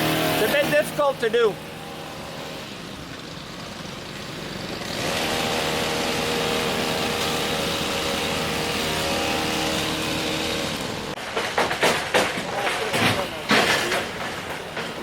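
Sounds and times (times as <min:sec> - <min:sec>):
engine running steadily: 0:00.0 - 0:11.2.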